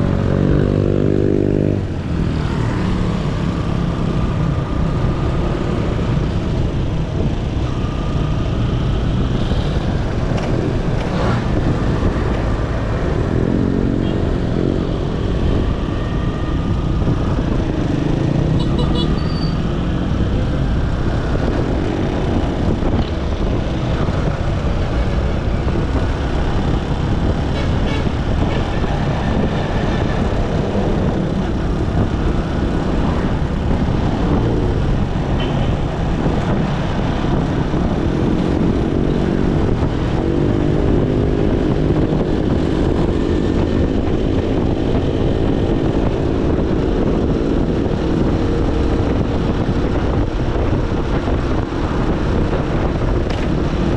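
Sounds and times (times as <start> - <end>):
road and wind noise: 0.0 - 53.9.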